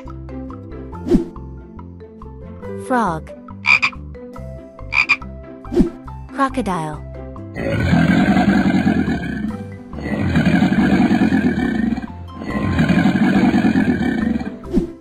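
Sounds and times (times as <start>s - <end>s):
background music: 0.0s - 15.0s
deep rough growling roar: 7.6s - 14.6s.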